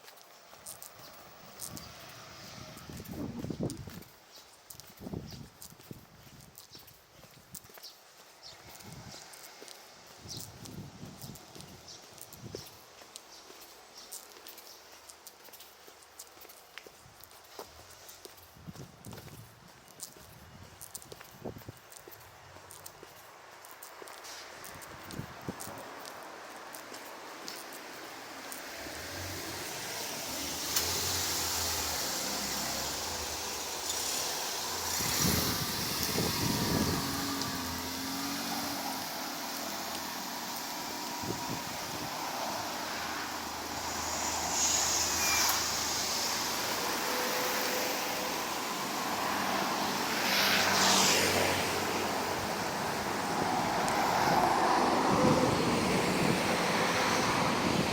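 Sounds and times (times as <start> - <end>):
traffic noise: 0.0 - 57.9
vehicle passing: 0.6 - 3.8, 24.2 - 57.9
tyre hiss: 23.8 - 57.8
car engine hum: 25.4 - 57.9.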